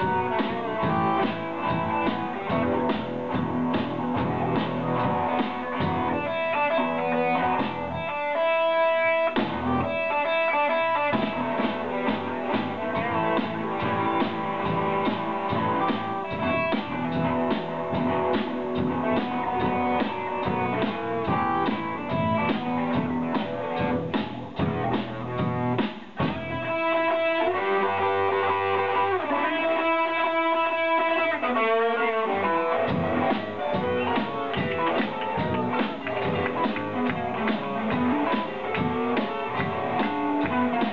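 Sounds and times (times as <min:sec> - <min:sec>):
steady drum beat: 0:00.0 - 0:08.2, 0:09.3 - 0:27.0, 0:32.7 - 0:40.9
electric guitar: 0:00.0 - 0:40.9
rock band playing live: 0:00.0 - 0:40.9.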